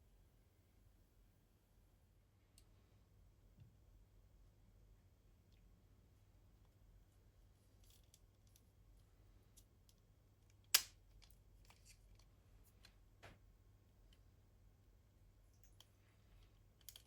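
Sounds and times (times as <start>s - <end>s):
faint clicks of small parts: 7.7s - 13.4s, 14.0s - 14.3s, 15.5s - 17.0s.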